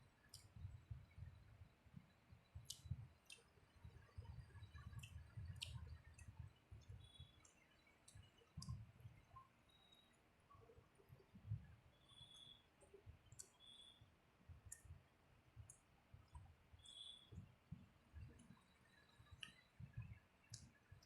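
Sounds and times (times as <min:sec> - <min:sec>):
wet mouth clicks and smacks: 0:02.6 - 0:04.1, 0:04.8 - 0:06.3.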